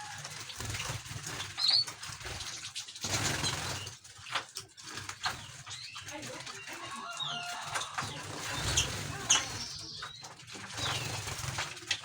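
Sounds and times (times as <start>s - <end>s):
birds fluttering wings: 0.0s - 12.0s
high bird chirp: 5.8s - 11.2s.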